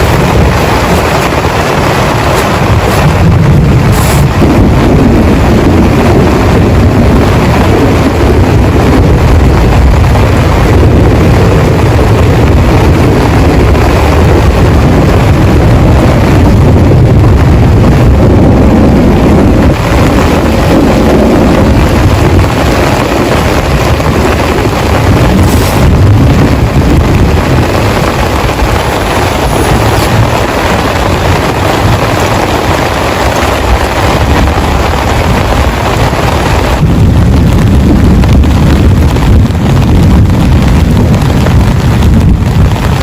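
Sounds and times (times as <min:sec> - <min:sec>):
heavy rain pouring: 0:00.0 - 0:43.0.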